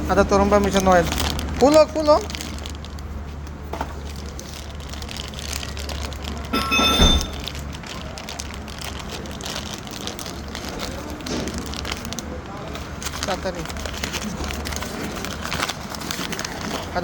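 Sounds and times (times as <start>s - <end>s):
handling noises: 2.4s - 9.2s
metallic ringing: 6.6s - 7.5s.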